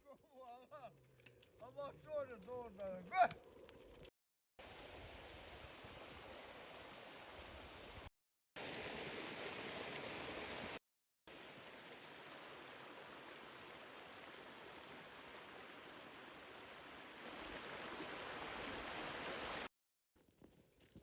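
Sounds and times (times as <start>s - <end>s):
river flowing: 4.6s - 19.7s.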